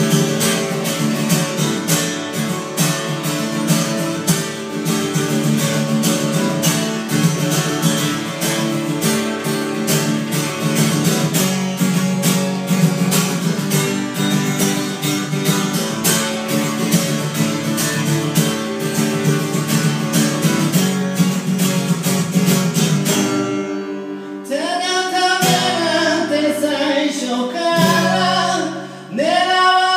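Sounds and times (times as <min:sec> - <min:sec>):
acoustic guitar strumming: 0:00.0 - 0:29.9
person singing: 0:24.2 - 0:29.9.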